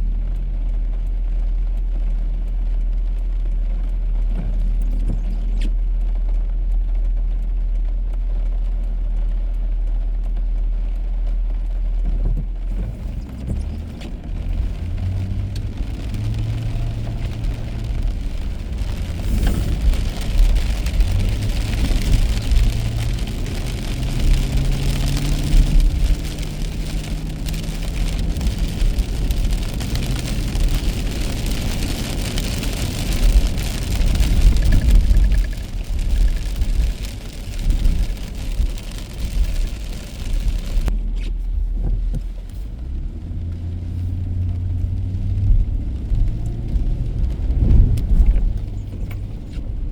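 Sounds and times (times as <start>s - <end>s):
car engine accelerating: 0.0s - 49.9s
tyres hissing on wet road: 12.9s - 41.4s, 42.5s - 49.8s.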